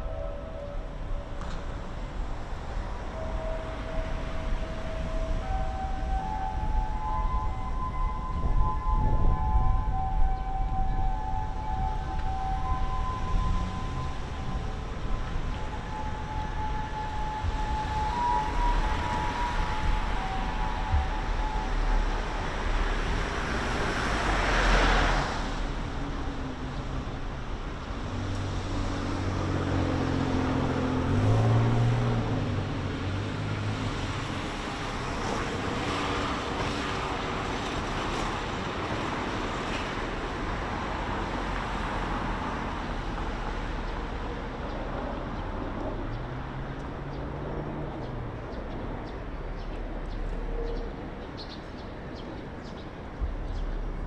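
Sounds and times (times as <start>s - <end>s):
hum of cars passing: 0.0s - 54.0s.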